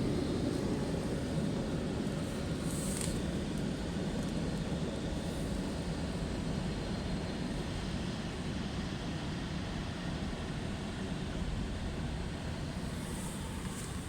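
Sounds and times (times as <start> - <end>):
car wash machinery: 12.5 - 14.0.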